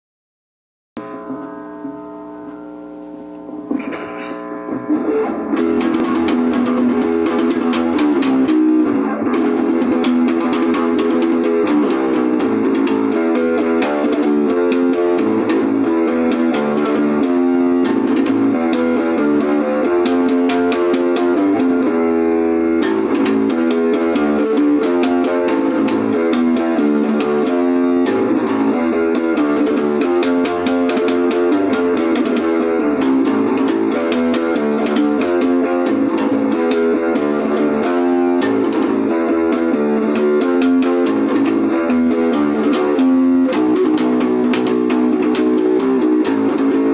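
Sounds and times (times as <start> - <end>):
plucked guitar music: 1.0 - 46.9.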